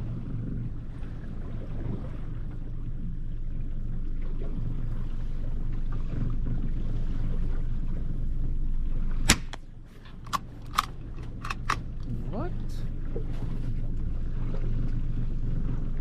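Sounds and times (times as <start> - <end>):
rifle gunshot: 9.3 - 9.6, 10.3 - 11.9.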